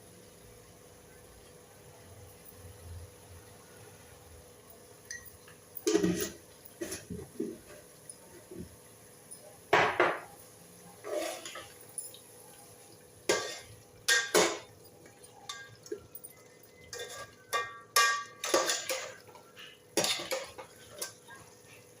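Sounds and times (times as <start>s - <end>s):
metal utensil scraping a pot: 5.8s - 8.6s, 11.0s - 11.8s, 13.3s - 14.7s, 16.8s - 21.4s.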